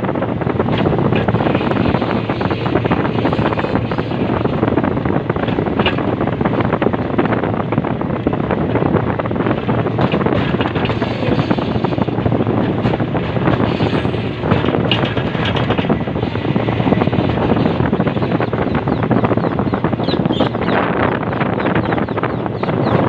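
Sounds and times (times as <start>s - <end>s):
track machine mechanical noise: 0.0s - 23.0s.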